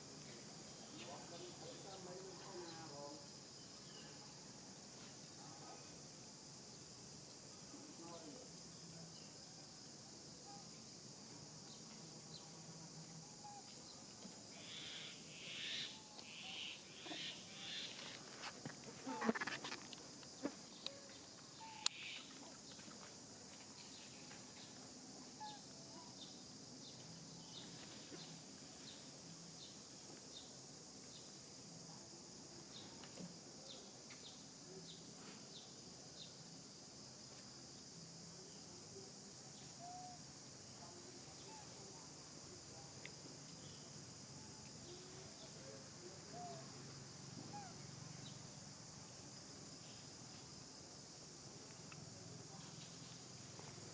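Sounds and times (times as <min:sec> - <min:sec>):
faint chirps: 0:07.6 - 0:23.1, 0:23.7 - 0:32.0, 0:38.0 - 0:48.5.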